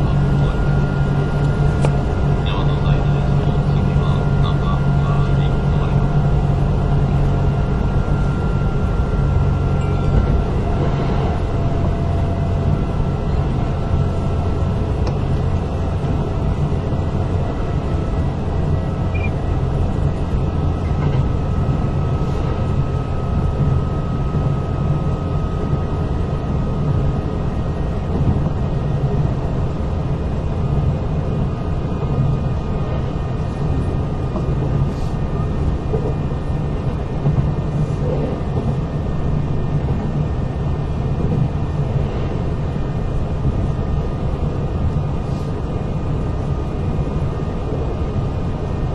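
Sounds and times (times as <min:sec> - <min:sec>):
faint high whine: 0:00.0 - 0:13.4
train wheels rumbling on rail: 0:00.0 - 0:48.9.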